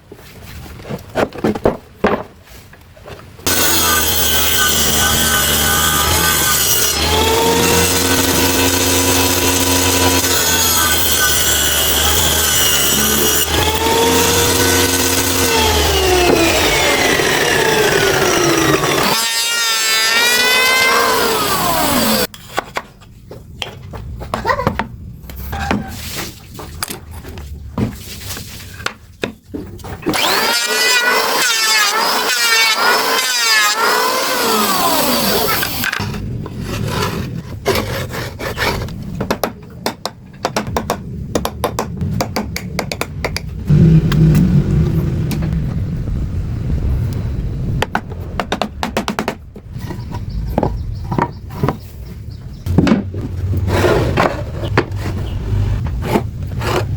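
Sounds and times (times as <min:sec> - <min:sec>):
power saw cutting wood: 0:03.5 - 0:22.3, 0:30.0 - 0:38.7.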